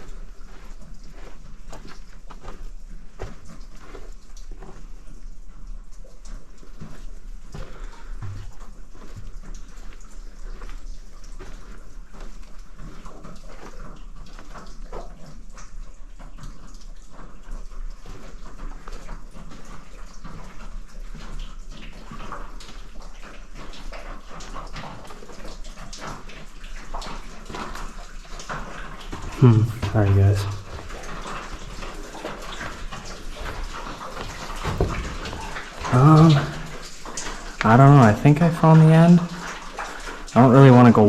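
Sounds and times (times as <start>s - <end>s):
footsteps: 0.0s - 5.0s, 6.7s - 14.7s, 27.0s - 41.0s
water dripping and splashing: 0.0s - 41.0s.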